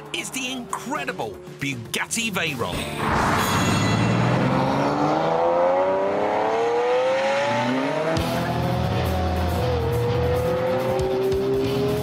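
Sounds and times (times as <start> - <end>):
car engine accelerating: 3.0 - 12.0.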